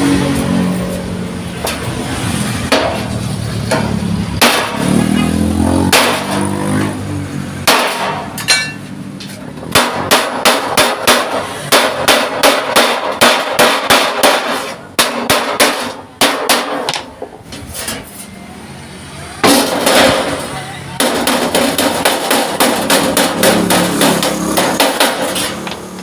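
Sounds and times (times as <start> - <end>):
hammer striking sheet steel: 0.0 - 7.0, 7.6 - 18.3, 19.4 - 26.0.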